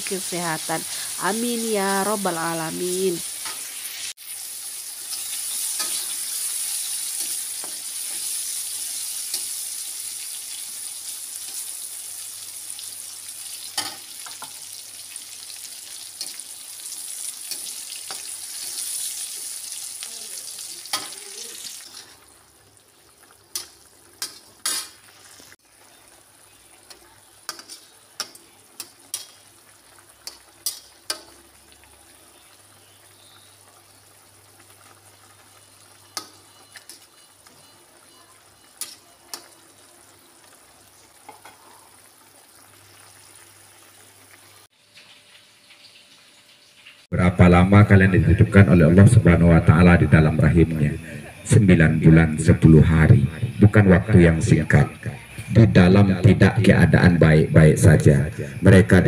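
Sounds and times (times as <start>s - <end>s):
paste sizzling in a wok: 0.0s - 47.1s.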